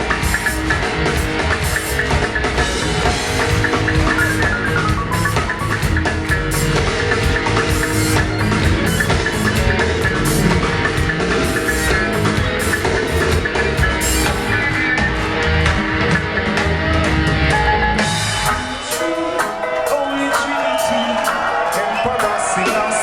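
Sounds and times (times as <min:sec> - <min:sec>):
reggae band playing: 0:00.0 - 0:23.0.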